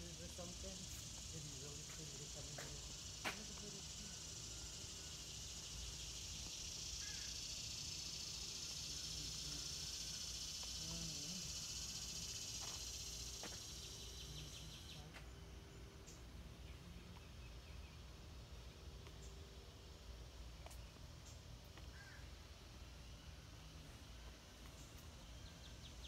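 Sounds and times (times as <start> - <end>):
high insect drone: 0.0 - 26.0
faint bird chirps: 4.1 - 15.4.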